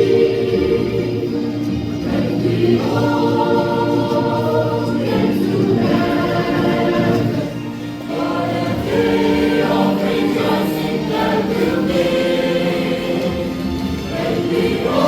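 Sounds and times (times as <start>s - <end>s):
choir singing a hymn: 0.0s - 15.0s.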